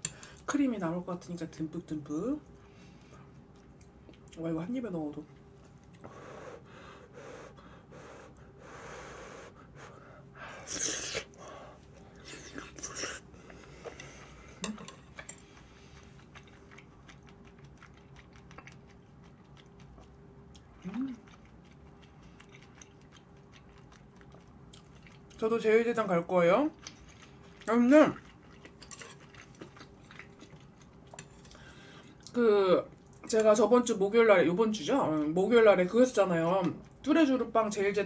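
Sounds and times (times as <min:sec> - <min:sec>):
person chewing noodles: 0:10.6 - 0:25.4, 0:26.7 - 0:32.3.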